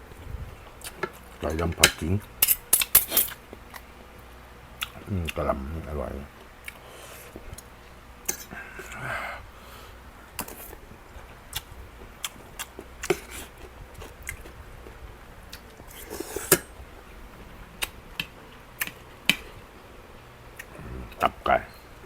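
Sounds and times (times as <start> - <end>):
person chewing food: 0.5 - 1.4, 4.8 - 5.4, 6.4 - 19.7, 20.5 - 21.4.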